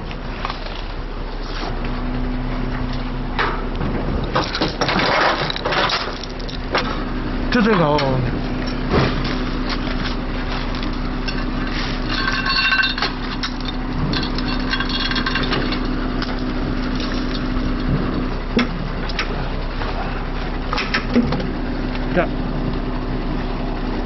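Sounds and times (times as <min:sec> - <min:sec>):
heavy truck engine running: 0:00.0 - 0:24.0
metal clinks and knocks: 0:08.0 - 0:17.9.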